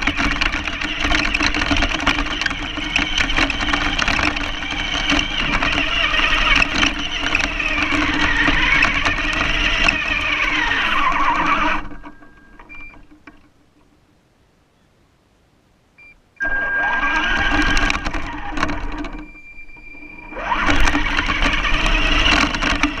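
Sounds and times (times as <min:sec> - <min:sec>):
toy car motor whining: 0:00.0 - 0:13.0, 0:16.4 - 0:23.0
faint short beeps: 0:12.0 - 0:13.0.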